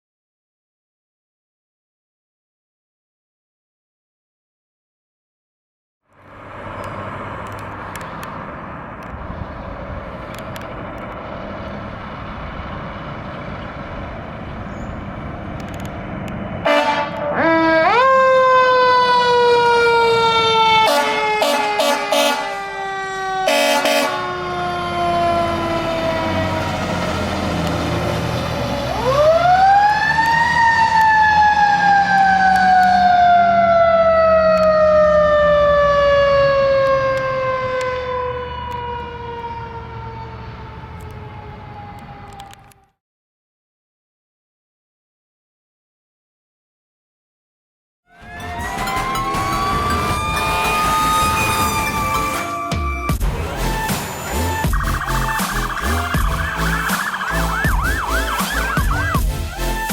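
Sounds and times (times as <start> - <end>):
fire engine running: 6.2 - 42.7, 48.1 - 59.9
air horn blasts: 16.6 - 18.2, 20.6 - 24.4, 48.1 - 59.9
siren winding up and falling: 17.4 - 27.2, 28.8 - 42.8, 48.1 - 59.9.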